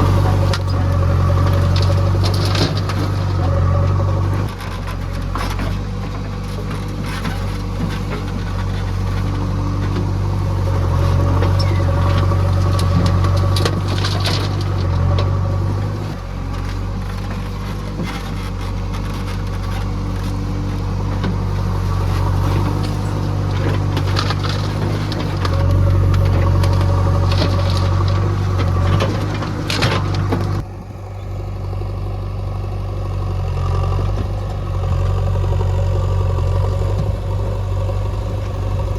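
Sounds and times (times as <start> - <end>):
diesel engine working under load: 0.0 - 38.9.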